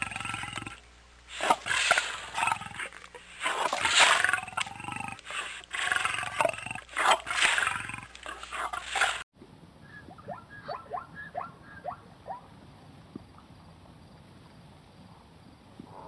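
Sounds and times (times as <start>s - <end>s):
big cat roaring and growling: 1.4s - 9.0s.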